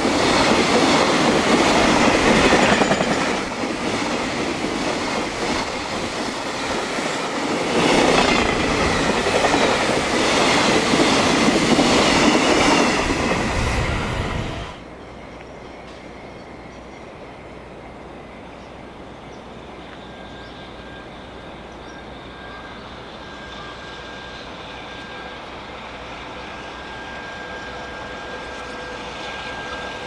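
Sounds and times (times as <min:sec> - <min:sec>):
distant freight train rumble: 0:00.0 - 0:30.0
thin steady whine: 0:02.0 - 0:16.1.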